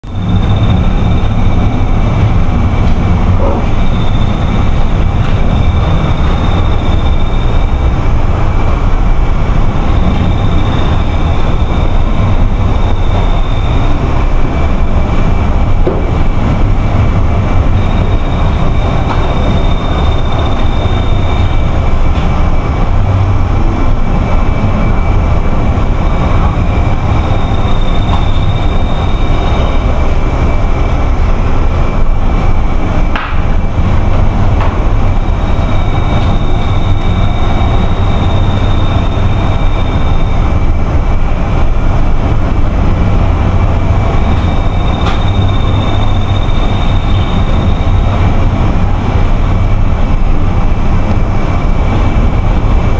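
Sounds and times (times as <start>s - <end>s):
high whistle: 0.0s - 2.1s, 3.4s - 8.1s, 9.7s - 14.2s, 17.8s - 21.8s, 26.0s - 30.0s, 35.1s - 40.6s, 44.2s - 48.3s
wind buffeting microphone: 0.0s - 52.9s
faint steady high tone: 3.4s - 8.0s, 17.7s - 21.9s, 44.2s - 48.2s.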